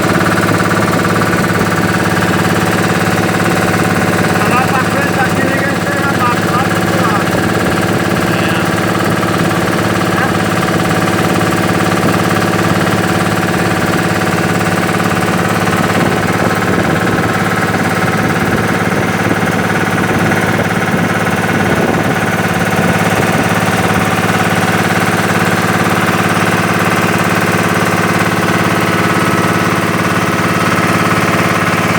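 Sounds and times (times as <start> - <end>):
boat engine droning: 0.0 - 31.9.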